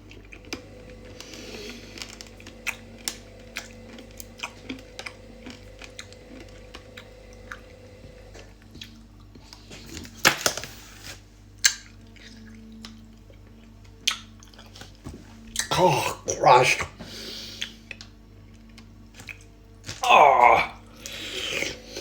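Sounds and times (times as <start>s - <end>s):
candy crunching: 0.0s - 6.8s, 17.6s - 22.0s.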